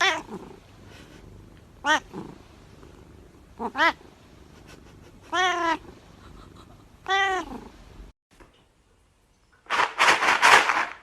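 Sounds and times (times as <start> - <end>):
cat meowing: 0.0 - 0.5, 1.8 - 2.2, 3.6 - 4.0, 5.3 - 5.9, 7.0 - 7.7.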